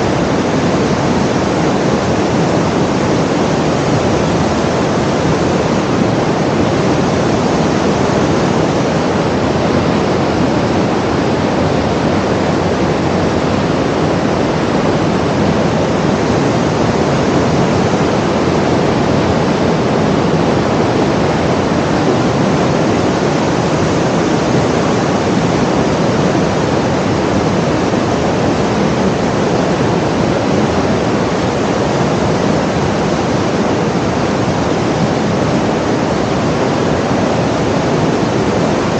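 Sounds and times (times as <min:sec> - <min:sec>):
steady rushing noise: 0:00.0 - 0:38.9.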